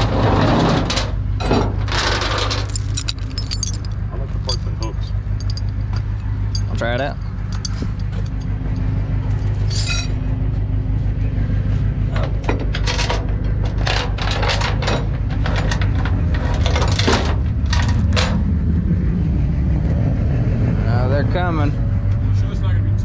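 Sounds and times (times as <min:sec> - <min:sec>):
truck engine idling: 0:01.0 - 0:23.0
metallic clinks and jangles: 0:02.4 - 0:08.6, 0:09.3 - 0:10.2.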